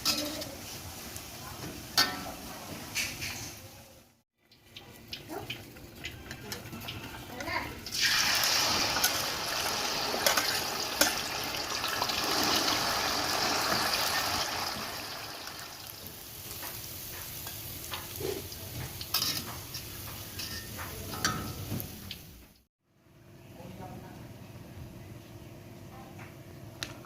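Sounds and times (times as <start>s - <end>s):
food sizzling in hot oil: 0.0s - 22.5s
utensil clicking against pan: 4.5s - 7.2s.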